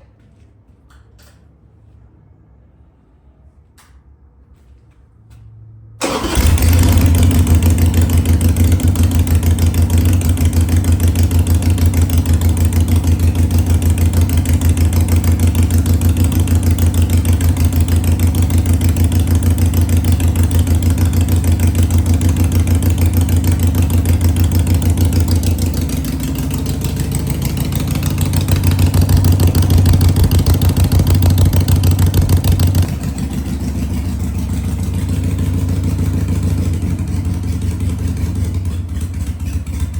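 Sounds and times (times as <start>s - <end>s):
motorcycle engine idling: 6.0s - 39.9s.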